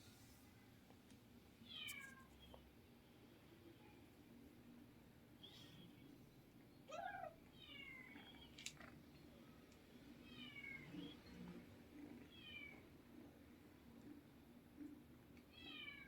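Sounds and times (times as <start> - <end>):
kittens mewing: 6.9 - 9.0.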